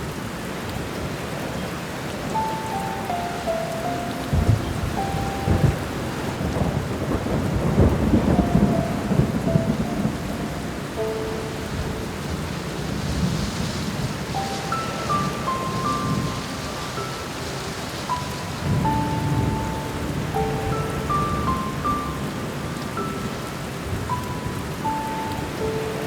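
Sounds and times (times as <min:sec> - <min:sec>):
steady rain: 0:00.0 - 0:26.0
soft piano notes: 0:01.5 - 0:26.0
rolling thunder: 0:04.2 - 0:25.8.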